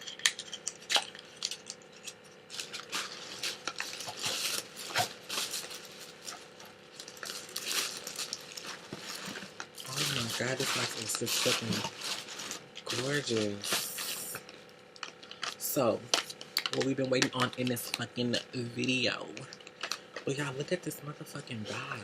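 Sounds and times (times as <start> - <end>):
packaging rustling: 0.0 - 15.7.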